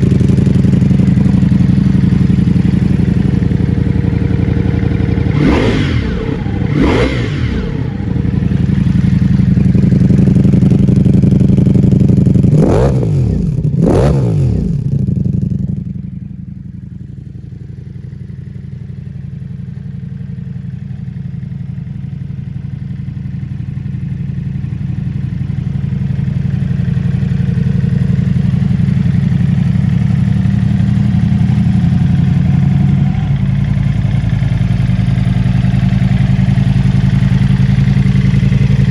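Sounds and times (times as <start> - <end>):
motorcycle engine idling: 0.0 - 38.9
engine revving blips: 5.3 - 8.0.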